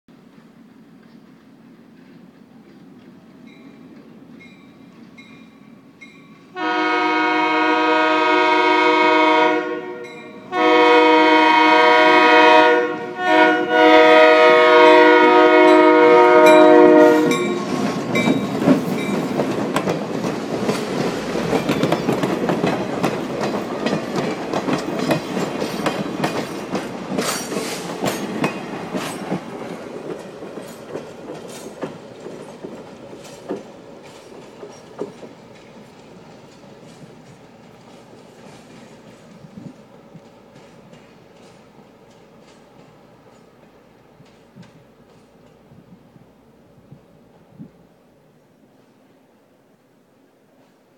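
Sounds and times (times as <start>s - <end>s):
train passing with rumbling: 0.1s - 50.9s
locomotive air horn: 6.5s - 17.8s
wheels clicking over rail joints: 17.2s - 45.8s.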